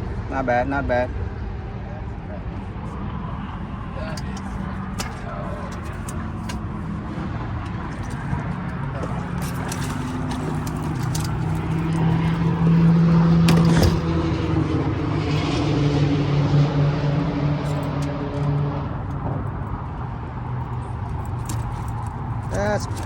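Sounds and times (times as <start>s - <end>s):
boat motor humming: 1.2s - 23.0s.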